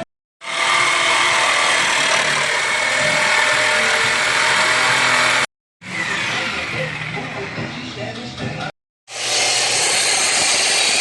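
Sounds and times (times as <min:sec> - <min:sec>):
power tool cutting metal pipe: 0:00.4 - 0:07.5, 0:09.1 - 0:11.0.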